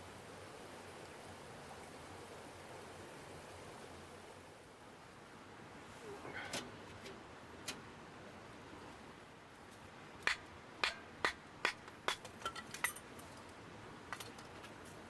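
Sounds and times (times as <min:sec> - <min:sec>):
hard objects clinking together: 0:10.3 - 0:13.4.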